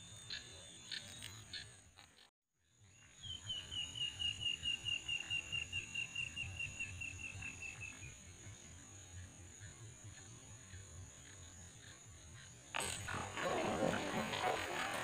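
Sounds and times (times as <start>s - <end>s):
high insect drone: 2.9s - 15.0s.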